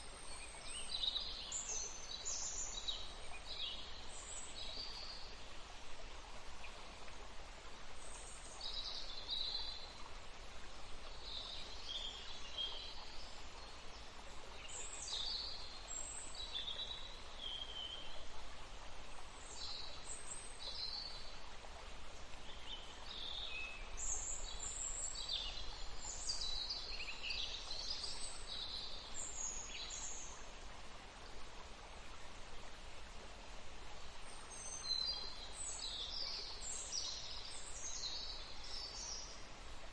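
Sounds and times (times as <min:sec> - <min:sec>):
steady outdoor hiss: 0:00.0 - 0:39.9
songbirds singing and chirping: 0:34.2 - 0:39.9.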